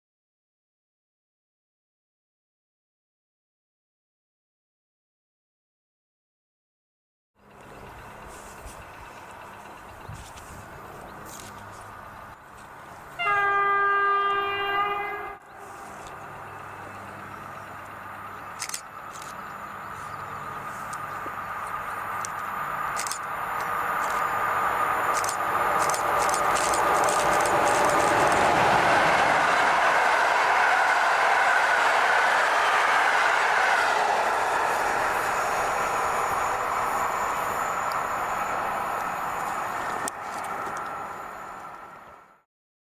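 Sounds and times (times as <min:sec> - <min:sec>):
train approaching rumble: 0:07.4 - 0:42.4
locomotive horn blast: 0:13.1 - 0:16.0.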